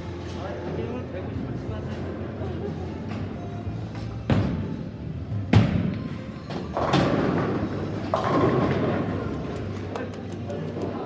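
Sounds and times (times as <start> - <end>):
bowling balls thudding on lanes: 5.5 - 9.8
bowling pins clattering: 6.6 - 9.8.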